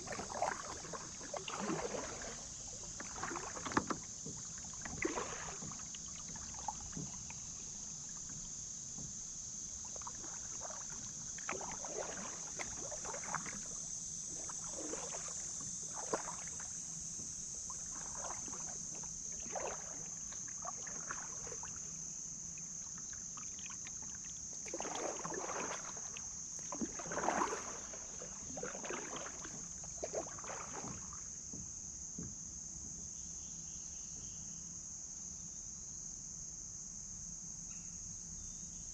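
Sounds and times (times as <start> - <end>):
kayak paddle splashing in water: 0.0 - 22.0, 22.7 - 31.4
insects chirping: 0.0 - 38.9.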